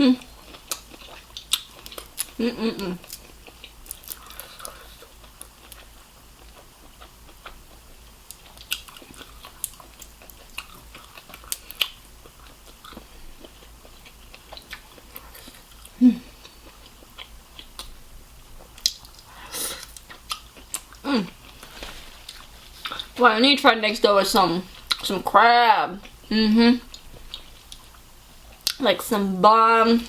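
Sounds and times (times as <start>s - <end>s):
chewing and biting shrimp: 0.3s - 2.4s, 3.0s - 18.0s, 18.6s - 23.2s.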